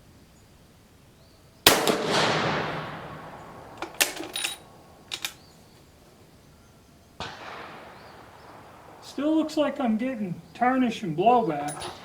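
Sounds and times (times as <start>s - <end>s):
rifle shot: 1.6s - 5.4s, 7.2s - 9.8s, 11.7s - 12.0s
rifle bolt metallic clicks: 3.7s - 5.4s, 11.6s - 12.0s.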